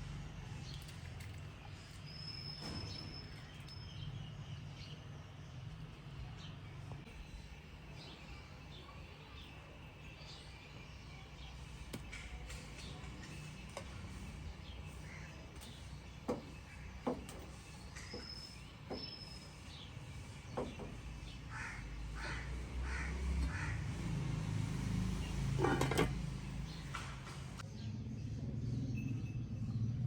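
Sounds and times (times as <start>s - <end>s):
crow cawing: 21.5s - 24.0s.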